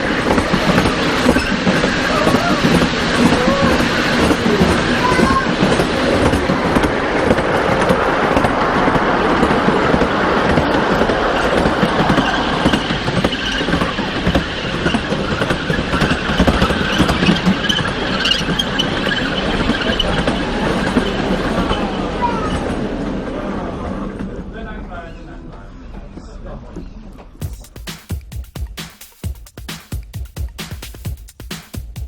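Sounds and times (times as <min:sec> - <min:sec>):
high wheel squeal: 0:00.0 - 0:06.7, 0:10.2 - 0:22.6
miniature train rattling on track: 0:00.0 - 0:25.5.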